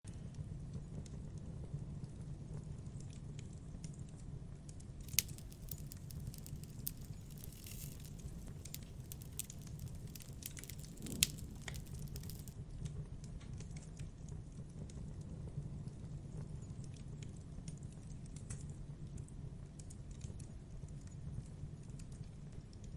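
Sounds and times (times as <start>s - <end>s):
campfire crackling: 5.1s - 12.5s
sharp fire pops: 5.1s - 12.5s.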